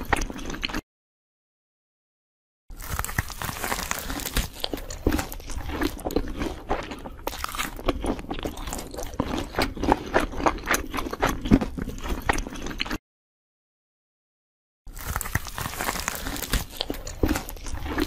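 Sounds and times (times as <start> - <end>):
person chewing crunchy food: 0.0 - 0.8, 2.7 - 13.0, 14.9 - 18.0.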